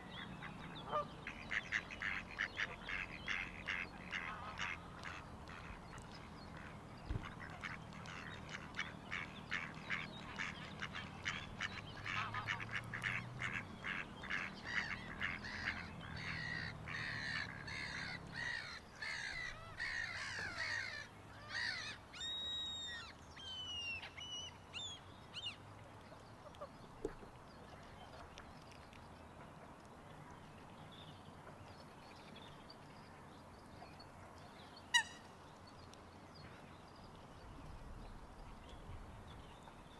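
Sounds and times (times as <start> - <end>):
waterfowl quacking: 0.8 - 21.0, 34.9 - 35.2.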